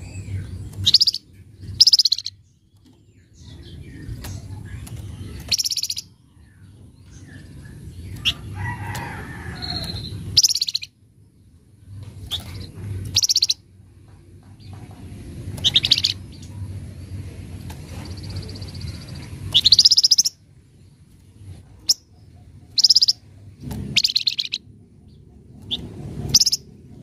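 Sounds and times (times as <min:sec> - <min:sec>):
soft bird calls: 0:00.0 - 0:11.0, 0:12.1 - 0:13.7, 0:14.5 - 0:27.0
steady low hum: 0:00.0 - 0:27.0
bird chattering call: 0:01.8 - 0:02.4, 0:09.6 - 0:10.9, 0:13.1 - 0:13.6, 0:15.6 - 0:16.2, 0:19.6 - 0:20.4, 0:22.7 - 0:23.2, 0:24.0 - 0:24.6, 0:26.3 - 0:26.6.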